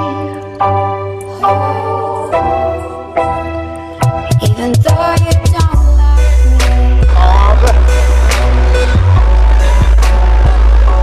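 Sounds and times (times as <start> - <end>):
hip-hop music with deep bass: 2.3 - 11.0.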